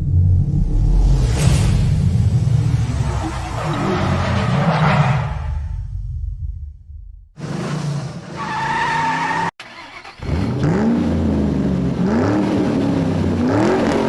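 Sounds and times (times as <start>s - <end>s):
car tyres squealing: 7.4s - 10.4s
car engine revving: 7.4s - 14.0s.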